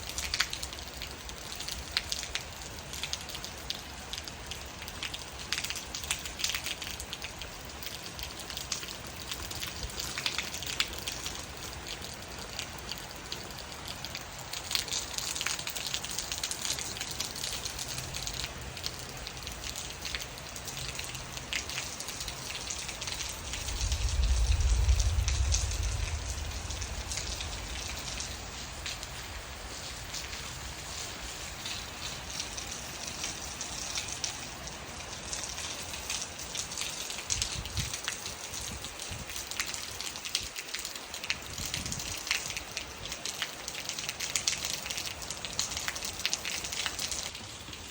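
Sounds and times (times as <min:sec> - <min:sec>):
raindrops ticking on surfaces: 0:00.0 - 0:47.9
steady rain falling: 0:00.0 - 0:47.9
low rumble: 0:23.4 - 0:29.6.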